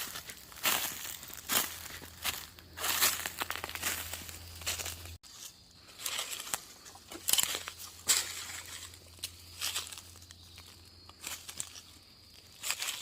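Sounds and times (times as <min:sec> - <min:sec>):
rustling and crinkling: 0:00.0 - 0:13.0.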